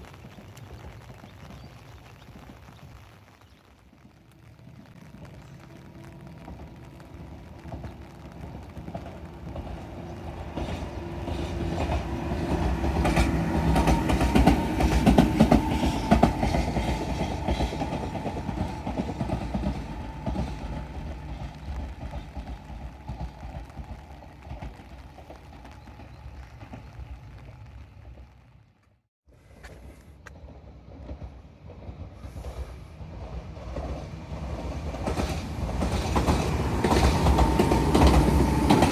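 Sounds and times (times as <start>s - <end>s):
electric train passing: 5.6s - 28.9s, 29.9s - 38.9s
wheels clicking over rail joints: 7.6s - 29.0s, 29.6s - 38.9s.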